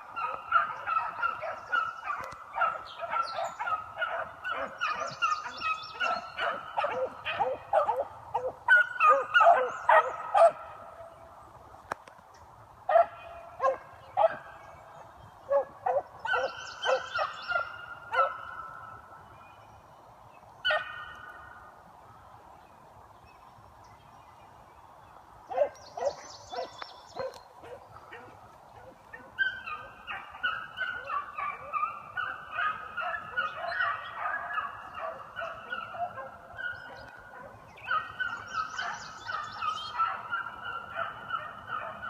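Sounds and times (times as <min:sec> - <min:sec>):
hounds baying: 0:00.0 - 0:11.0, 0:15.5 - 0:18.8, 0:20.6 - 0:21.2, 0:25.5 - 0:42.0.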